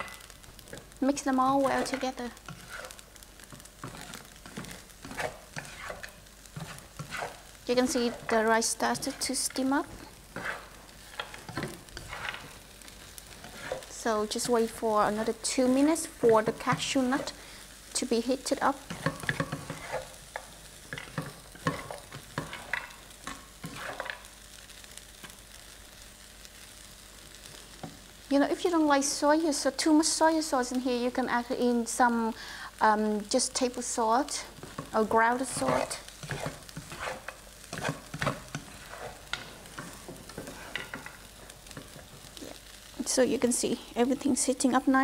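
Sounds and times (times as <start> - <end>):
faint sizzle: 0.0 - 45.0
spatula scraping and knocking pan: 1.6 - 17.4, 18.7 - 24.3, 34.6 - 42.8.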